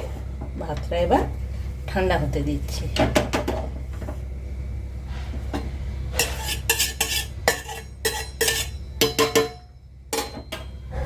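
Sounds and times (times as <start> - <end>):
metal utensils clinking on pot: 6.2 - 10.8.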